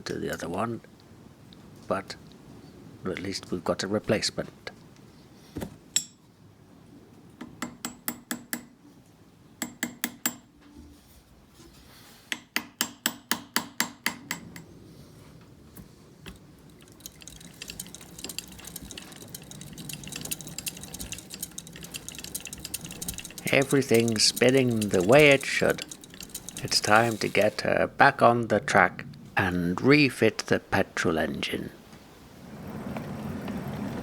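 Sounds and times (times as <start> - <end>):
hammer tapping metal: 9.6 - 10.5, 12.4 - 14.6, 16.3 - 27.7
fast light ticking rattle: 16.3 - 28.0.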